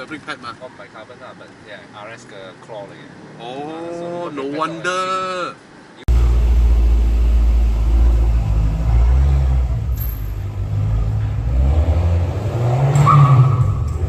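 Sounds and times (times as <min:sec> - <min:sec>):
car engine revving: 0:06.1 - 0:14.0.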